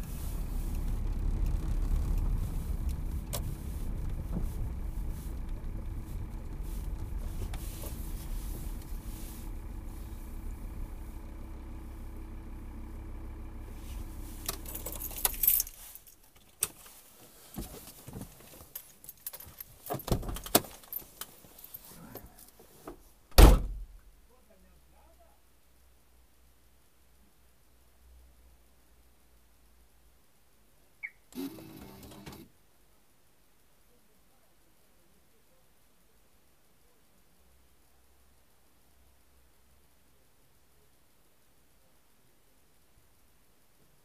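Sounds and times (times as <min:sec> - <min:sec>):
car engine running: 0:00.0 - 0:15.6
keys jangling: 0:14.5 - 0:16.3, 0:18.6 - 0:21.8.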